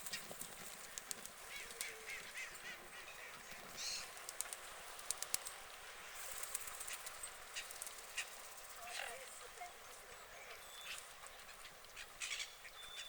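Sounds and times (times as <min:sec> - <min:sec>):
sharp clicks: 0:00.8 - 0:02.0, 0:04.1 - 0:05.6.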